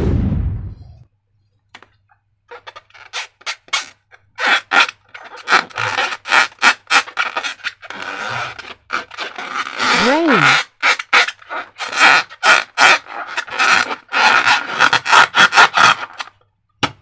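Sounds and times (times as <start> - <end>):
loud sound: 0.0 - 1.0.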